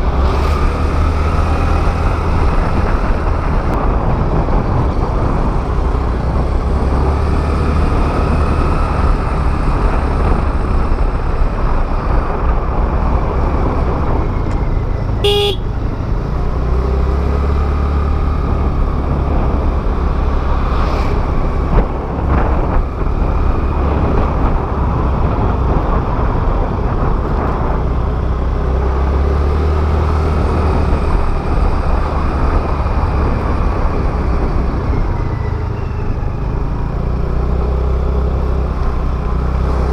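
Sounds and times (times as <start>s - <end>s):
scooter engine: 0.0s - 27.4s
wind buffeting microphone: 0.0s - 39.9s
vehicle horn toot: 15.2s - 15.8s.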